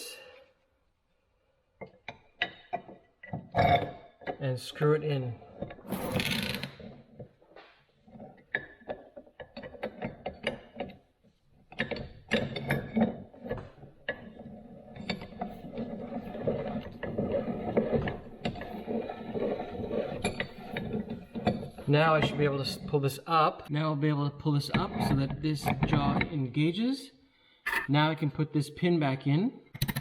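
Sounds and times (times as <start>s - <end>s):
bench vise clicking and rattling: 8.1s - 11.0s, 11.7s - 21.9s.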